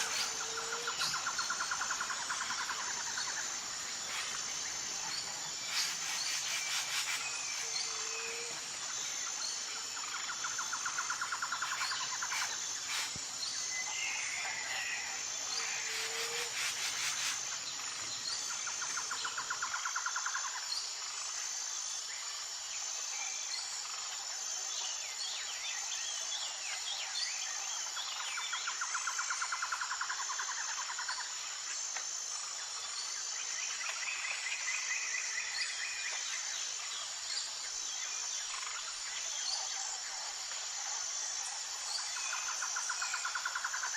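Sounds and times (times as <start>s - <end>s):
bird calls: 0.0s - 8.6s, 10.4s - 13.2s
insect drone: 0.0s - 43.9s.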